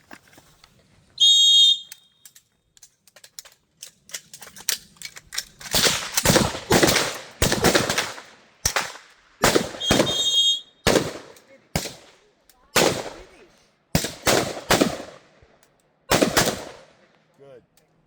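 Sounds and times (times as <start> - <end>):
rifle handling clicks: 1.7 - 6.4
rifle shots with echoes: 5.7 - 15.5, 16.1 - 17.2.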